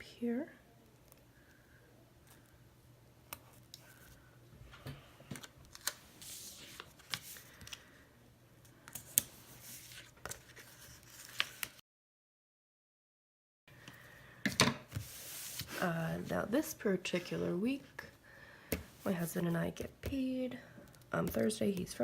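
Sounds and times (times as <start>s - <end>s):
paper and sticker backing rustling: 5.3s - 7.8s, 8.9s - 11.8s, 14.9s - 15.9s.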